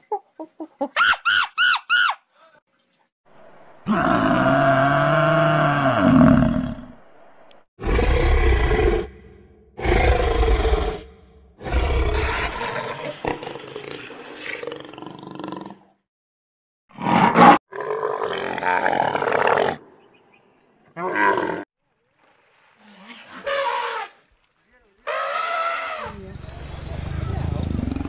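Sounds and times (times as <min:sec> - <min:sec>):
dinosaur roar: 0:03.8 - 0:07.0, 0:07.8 - 0:15.8, 0:17.0 - 0:19.8, 0:25.1 - 0:28.0.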